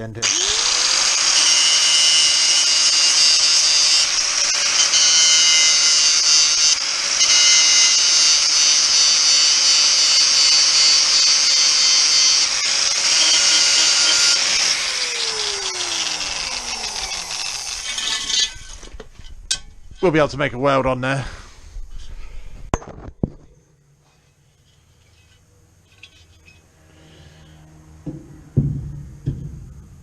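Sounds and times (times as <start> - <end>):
grinder spinning down: 0.2 - 18.9
angle grinder grinding metal: 0.2 - 20.1.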